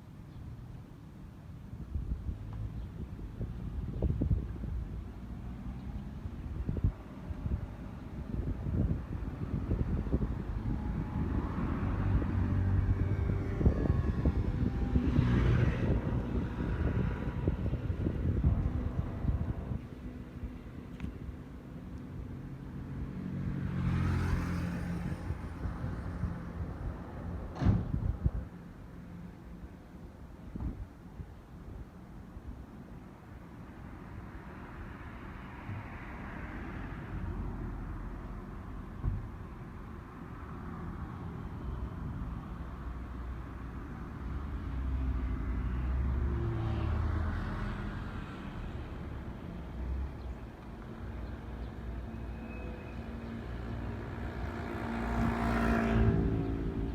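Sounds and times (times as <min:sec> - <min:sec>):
sharp thump: 0:27.5 - 0:28.1.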